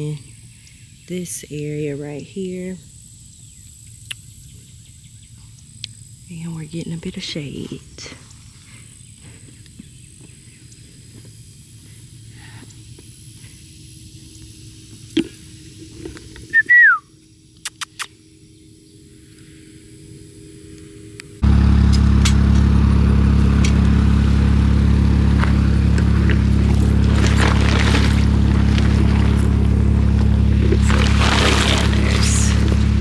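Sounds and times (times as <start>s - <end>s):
vehicle engine running: 21.1s - 33.0s.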